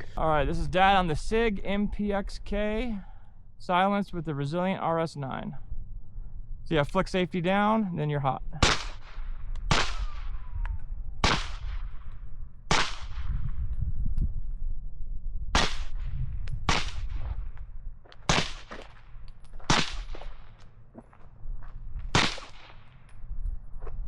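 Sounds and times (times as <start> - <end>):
suppressed gunshots: 8.6 - 10.5, 11.2 - 13.4, 15.5 - 17.4, 18.2 - 20.6, 22.1 - 23.0.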